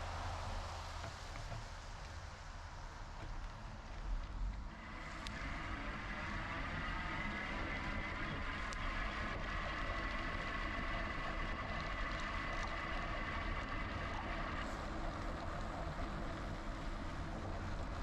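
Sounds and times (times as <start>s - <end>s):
electric bike motor whine: 4.7s - 18.0s.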